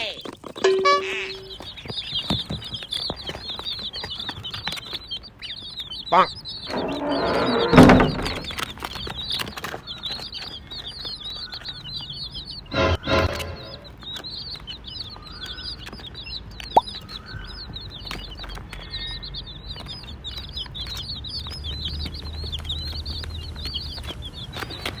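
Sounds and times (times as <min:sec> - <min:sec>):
baby chicks peeping: 0:00.0 - 0:25.0
flapping and scuffling: 0:06.6 - 0:11.1.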